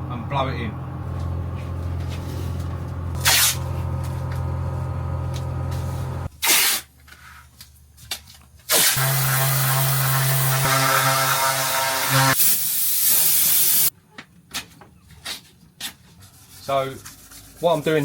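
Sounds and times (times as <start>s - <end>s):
machine hum: 0.0s - 6.3s
compressed air hiss: 12.4s - 13.9s.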